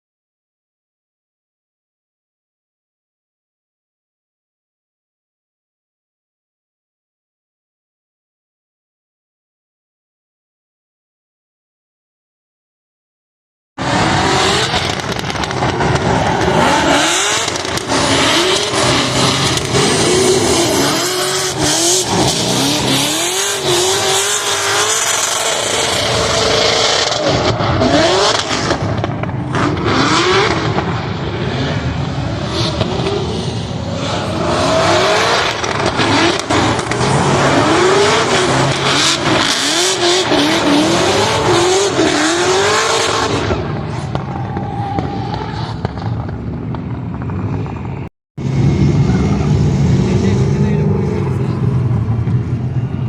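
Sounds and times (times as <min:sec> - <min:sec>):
car engine revving hard: 0:13.8 - 0:43.8
rushing tyre noise: 0:13.8 - 0:53.0.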